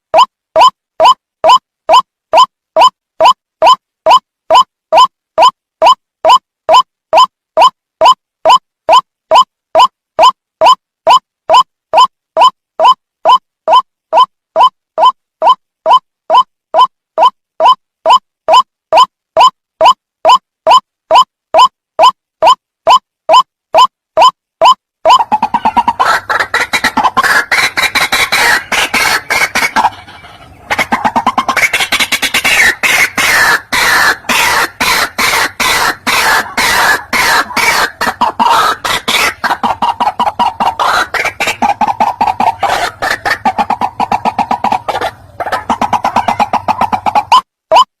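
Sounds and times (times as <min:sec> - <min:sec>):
waterhen croaking calls: 0:24.2 - 0:47.9.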